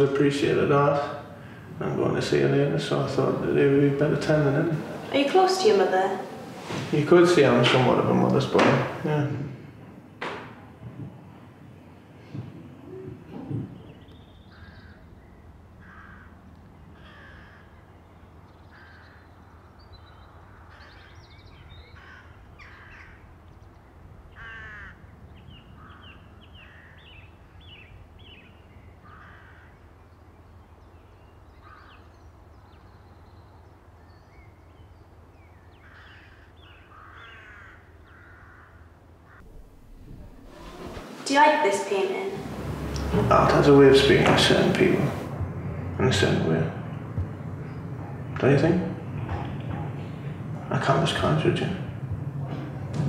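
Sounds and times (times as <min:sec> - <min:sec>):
birds calling: 0:00.0 - 0:53.0
low steady hum: 0:39.4 - 0:53.0.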